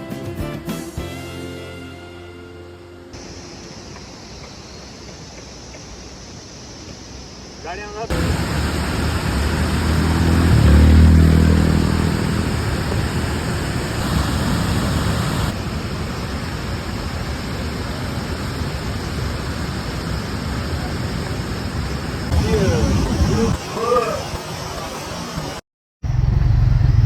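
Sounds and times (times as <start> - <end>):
wind and road noise: 3.2 - 27.0
motorcycle engine hum: 8.1 - 15.6, 26.0 - 27.0.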